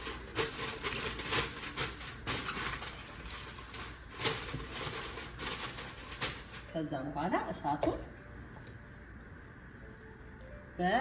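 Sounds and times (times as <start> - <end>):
aluminium foil crinkling: 0.0 - 6.9.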